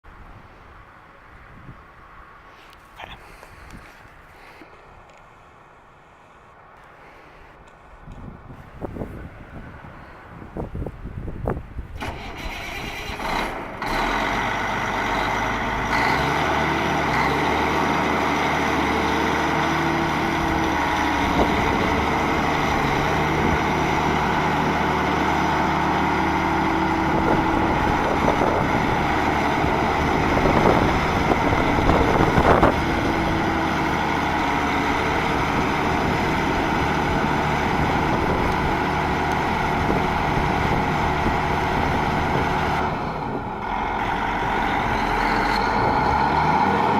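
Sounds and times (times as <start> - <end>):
tractor diesel engine running: 11.2 - 46.9.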